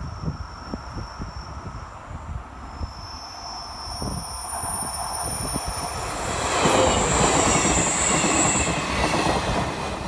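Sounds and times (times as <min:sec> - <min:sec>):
thin high wheel squeal: 0:02.7 - 0:08.9
train wheels clattering on track: 0:05.3 - 0:10.0.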